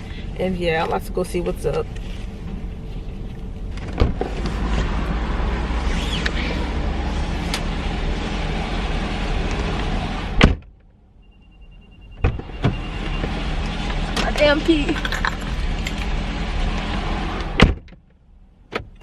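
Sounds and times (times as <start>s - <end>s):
car engine humming: 0.0s - 19.0s
high warning chime: 11.2s - 13.3s.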